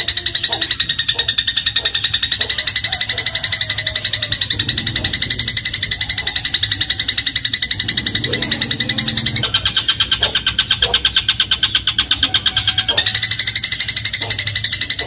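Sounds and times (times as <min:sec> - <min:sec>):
sparrow chattering rattle: 0:00.0 - 0:15.0.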